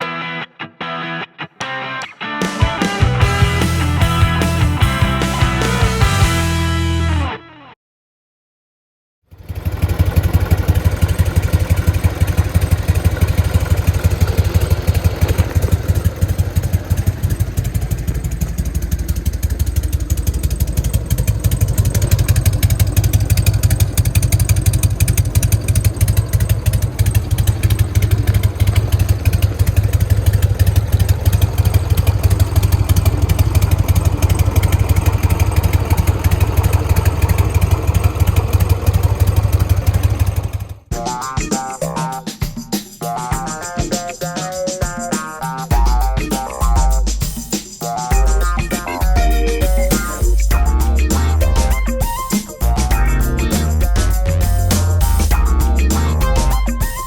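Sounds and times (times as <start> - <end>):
motorcycle engine idling: 3.2 - 6.8, 9.3 - 40.9, 48.1 - 56.9.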